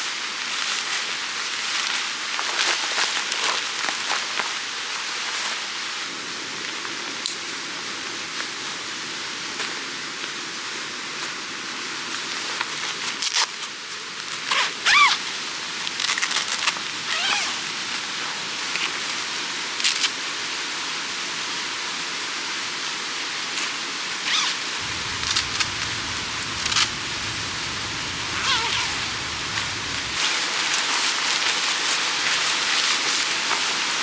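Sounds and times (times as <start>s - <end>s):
stream rushing: 24.8s - 30.2s.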